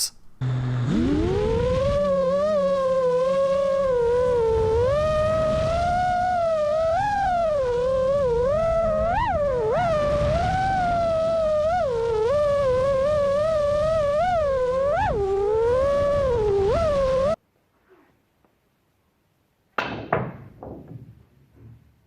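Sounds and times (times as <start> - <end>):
gliding pitched tone: 0.0 - 17.4.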